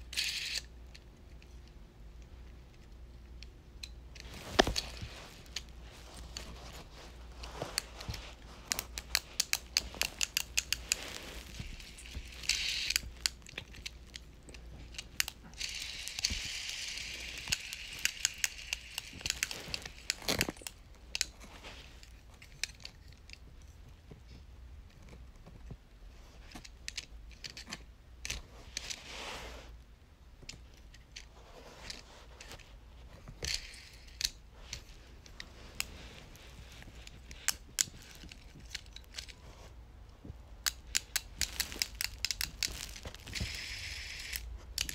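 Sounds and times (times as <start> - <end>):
fidget toys clicking: 0.0 - 1.7, 8.7 - 21.4, 33.4 - 35.4, 37.0 - 39.3, 40.6 - 44.9
packaging crinkling and tearing: 41.2 - 43.6.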